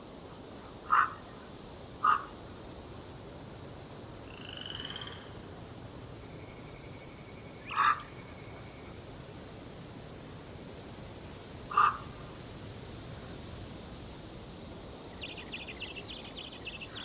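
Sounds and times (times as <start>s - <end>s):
background hiss: 0.0s - 17.0s
bird calls: 0.9s - 1.4s, 7.5s - 9.0s, 11.7s - 12.1s, 15.1s - 17.0s
high bird trill: 6.6s - 9.0s, 15.2s - 17.0s.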